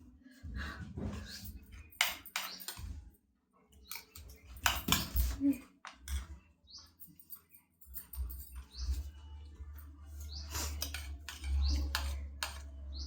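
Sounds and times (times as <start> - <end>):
cutlery clicking against dishes: 1.2 - 2.9, 3.8 - 6.3, 10.4 - 12.8.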